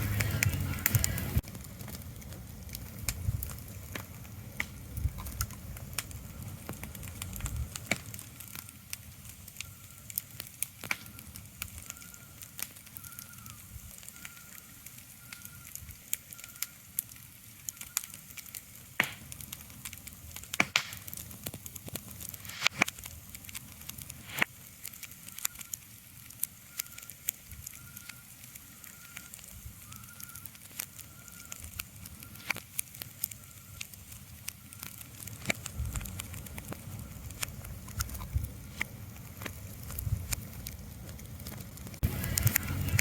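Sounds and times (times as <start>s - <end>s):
low rumble: 0.0s - 3.7s, 35.7s - 43.0s
sharp crackles and ticks: 0.0s - 43.0s.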